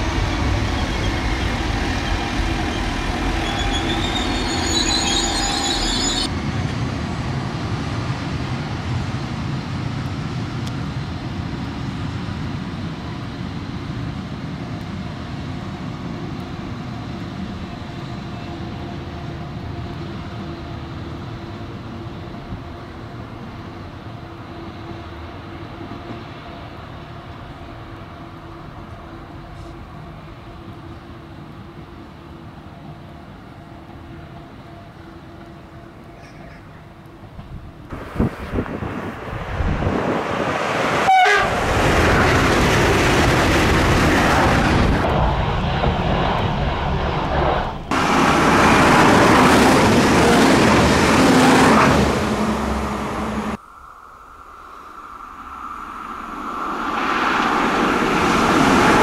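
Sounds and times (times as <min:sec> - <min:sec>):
train wheels squealing: 0:00.0 - 0:06.3, 0:34.9 - 0:36.9
train rumbling on rails: 0:00.0 - 0:59.0.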